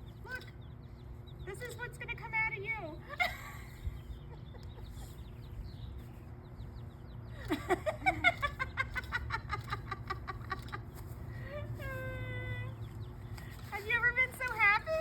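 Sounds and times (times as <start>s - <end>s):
chirping clucks: 3.2s - 15.0s
chicks peeping: 3.8s - 15.0s.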